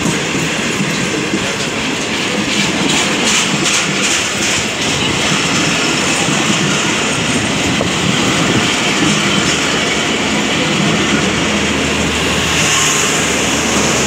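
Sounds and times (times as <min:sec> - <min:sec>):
train wheels rolling on rails: 0:00.0 - 0:14.0.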